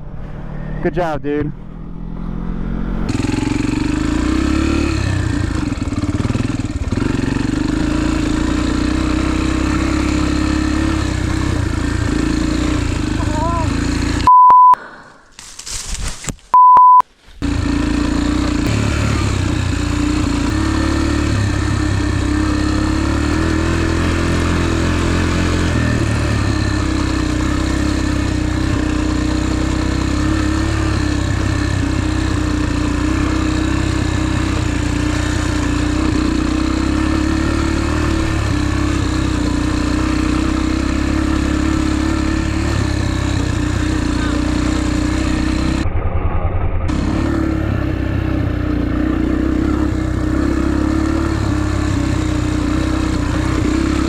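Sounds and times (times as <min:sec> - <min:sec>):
motorcycle engine running: 0:00.0 - 0:14.3, 0:17.4 - 0:54.0
short electronic beeps: 0:14.2 - 0:14.8, 0:16.5 - 0:17.0.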